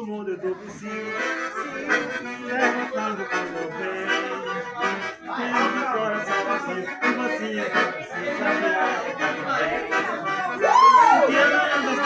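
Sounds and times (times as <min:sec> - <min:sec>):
accordion music: 0:00.0 - 0:12.0.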